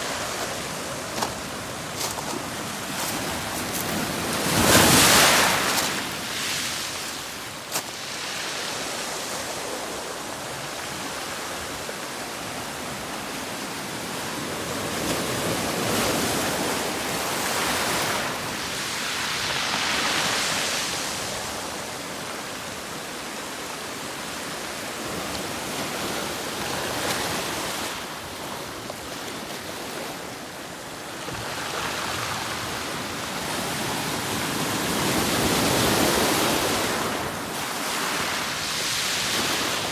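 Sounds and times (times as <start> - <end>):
ocean surf washing onto shore: 0.0 - 9.6.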